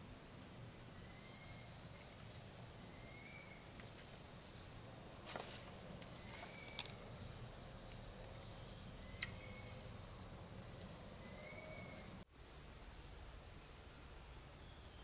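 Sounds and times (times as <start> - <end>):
low steady rumble: 0.0 - 15.0
bird chirping: 0.8 - 4.9, 6.0 - 12.2, 12.9 - 15.0
rustle or crackle: 5.1 - 8.4.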